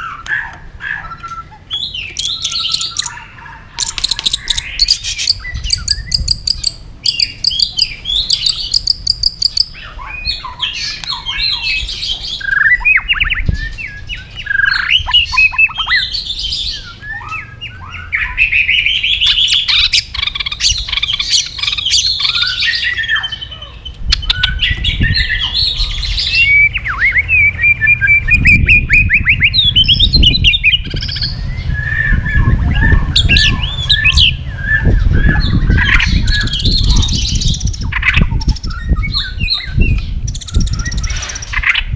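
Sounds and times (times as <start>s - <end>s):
songbird singing: 0.0s - 41.9s
low rumble: 24.0s - 41.2s.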